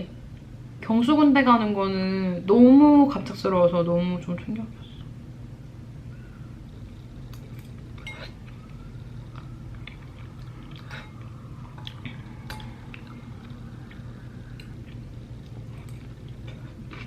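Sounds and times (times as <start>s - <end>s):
steady low hum: 0.0s - 17.0s
person chewing food: 6.8s - 17.0s.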